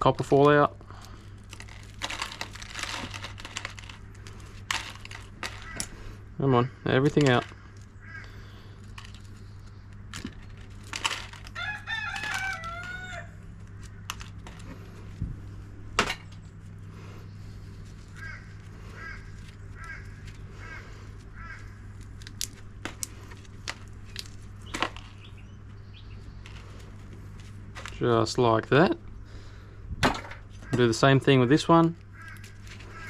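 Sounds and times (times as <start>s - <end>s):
rooster crowing: 11.5s - 13.4s
short rooster calls: 11.6s - 13.4s.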